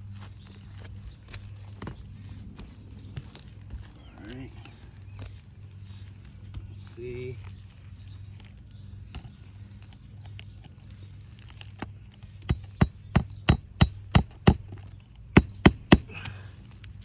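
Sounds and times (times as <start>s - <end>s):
hammer striking nail: 12.5s - 14.8s, 15.4s - 16.3s.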